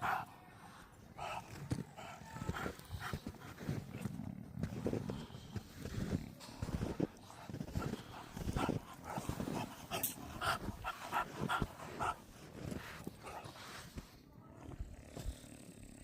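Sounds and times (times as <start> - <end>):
puppy grunting: 7.0 - 13.5.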